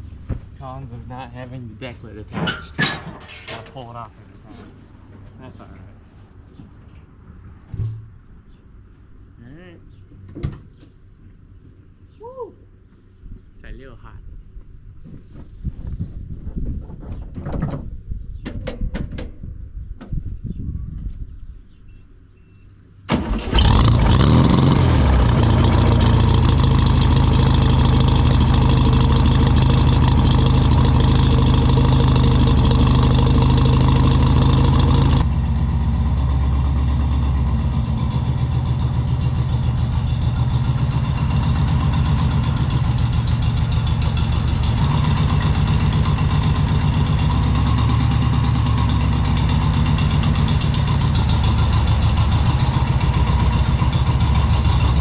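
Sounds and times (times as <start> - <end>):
car engine pulsing idle: 23.1 - 55.0.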